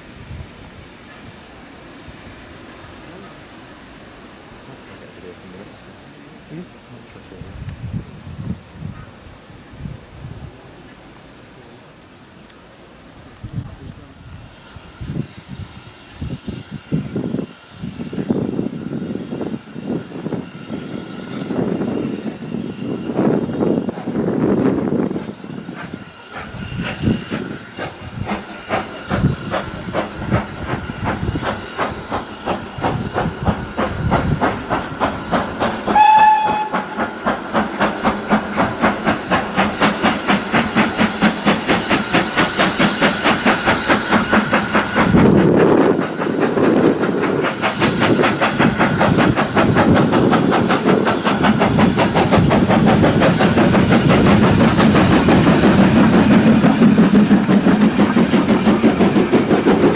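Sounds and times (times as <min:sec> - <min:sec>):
steam locomotive chuffing: 0:00.0 - 0:59.9
train whistle blast: 0:35.8 - 0:37.1.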